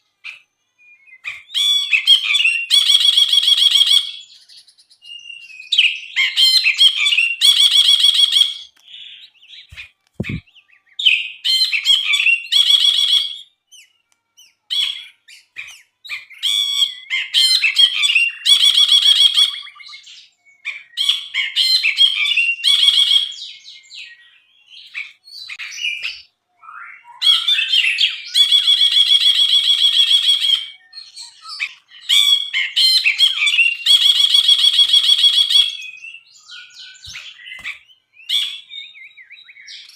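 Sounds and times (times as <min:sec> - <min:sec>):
soft low thump: 0:10.2 - 0:10.4.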